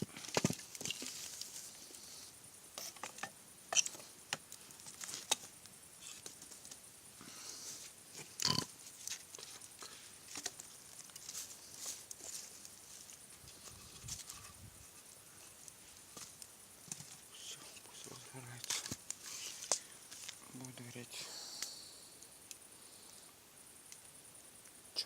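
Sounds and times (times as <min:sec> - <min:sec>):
fire hissing: 0:00.0 - 0:20.5, 0:21.1 - 0:24.9
campfire crackling and popping: 0:00.2 - 0:06.8, 0:08.0 - 0:14.3, 0:15.0 - 0:17.2, 0:18.5 - 0:20.4, 0:21.5 - 0:24.8.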